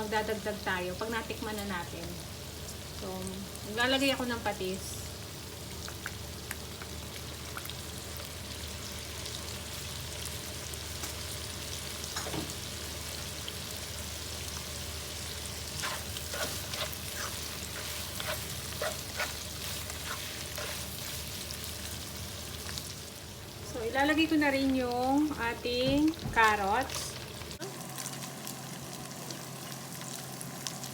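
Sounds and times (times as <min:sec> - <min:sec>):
food sizzling in hot oil: 0:00.0 - 0:30.9
spoon scraping and knocking pan: 0:15.8 - 0:21.0.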